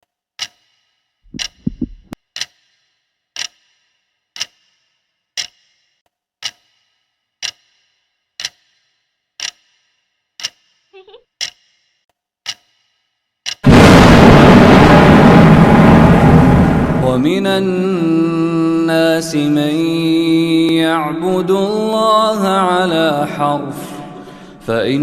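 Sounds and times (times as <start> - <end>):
clock ticking: 0.4 - 0.6, 1.3 - 2.6, 3.4 - 3.6, 4.4 - 4.7, 5.4 - 5.7, 6.4 - 6.8, 7.4 - 7.8, 8.4 - 8.8, 9.4 - 9.8, 10.4 - 10.6, 11.4 - 11.7, 12.4 - 12.8
short low rumble: 1.3 - 2.2, 13.7 - 17.5.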